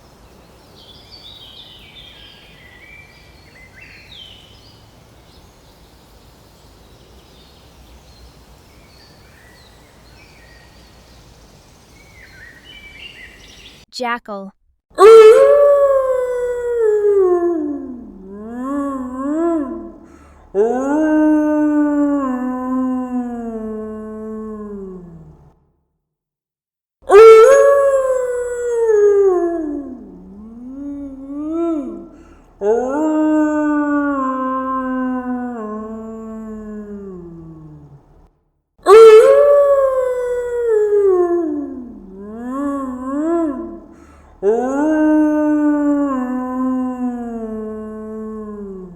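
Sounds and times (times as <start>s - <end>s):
background hiss and rumble: 0.0s - 13.8s, 15.0s - 25.6s, 27.1s - 38.3s, 38.9s - 48.9s
jackal howling: 15.0s - 25.4s, 27.1s - 38.0s, 38.9s - 48.9s.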